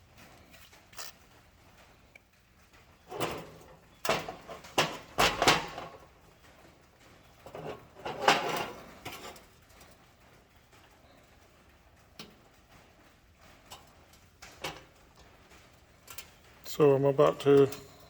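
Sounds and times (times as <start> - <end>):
parts clattering: 3.1 - 6.2.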